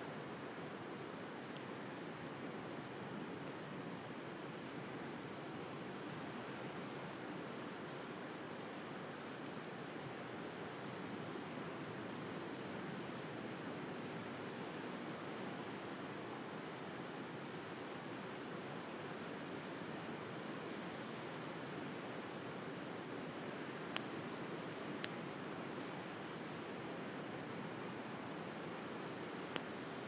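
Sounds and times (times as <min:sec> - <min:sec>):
bonfire crackling: 0:22.2 - 0:30.0.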